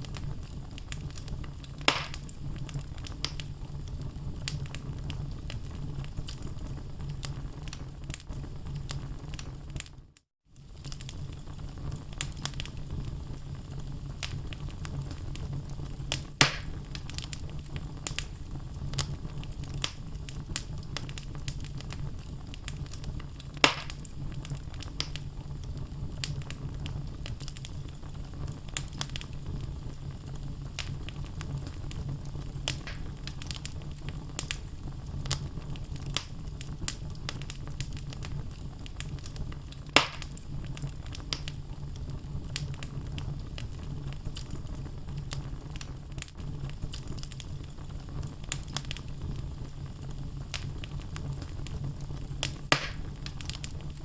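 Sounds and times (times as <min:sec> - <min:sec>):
sharp fire pops: 0:00.0 - 0:10.0, 0:10.6 - 0:54.0
wood fire crackling: 0:00.0 - 0:54.0.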